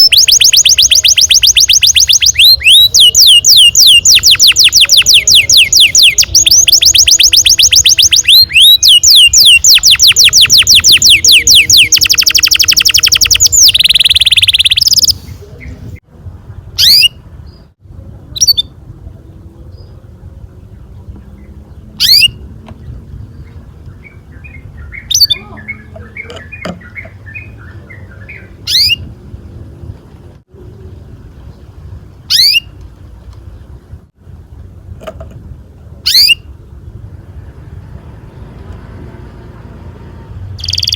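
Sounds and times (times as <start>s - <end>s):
canary singing: 0.0s - 15.8s, 16.8s - 17.7s, 18.3s - 18.8s, 19.7s - 29.2s, 32.3s - 32.8s, 36.0s - 36.5s, 40.6s - 40.9s.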